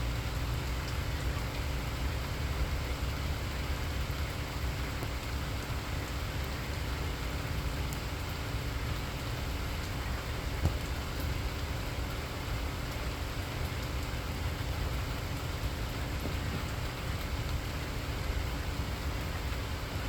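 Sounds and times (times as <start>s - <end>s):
constant low rumble: 0.0s - 20.0s
steady rainfall: 0.0s - 20.0s.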